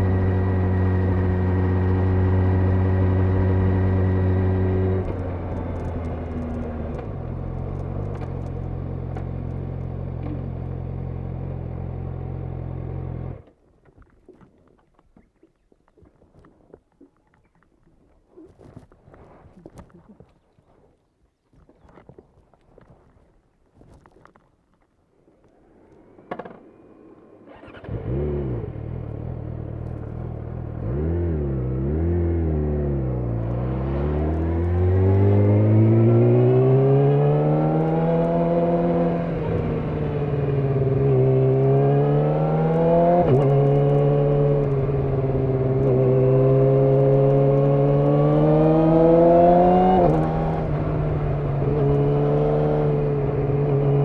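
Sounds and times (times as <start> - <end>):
motorcycle engine revving: 0.0 - 13.4, 27.0 - 54.0.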